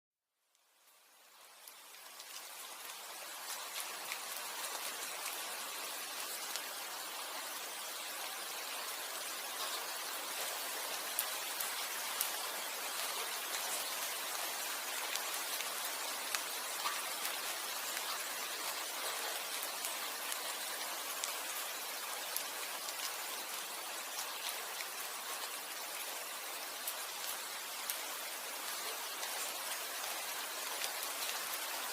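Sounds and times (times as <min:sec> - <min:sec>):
raindrops ticking: 0:00.5 - 0:06.7, 0:09.6 - 0:21.6
rain hissing: 0:00.5 - 0:31.9.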